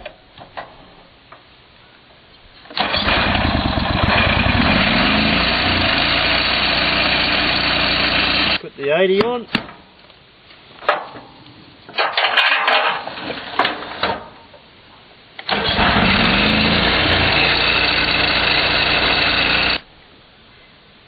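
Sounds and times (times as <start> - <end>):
petrol engine revving: 2.8 - 8.6, 15.5 - 19.8.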